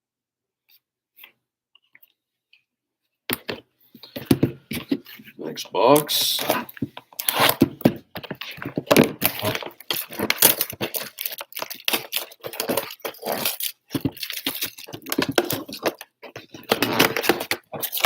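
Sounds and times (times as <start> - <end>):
cardboard and wrapping tearing: 6.2 - 18.0.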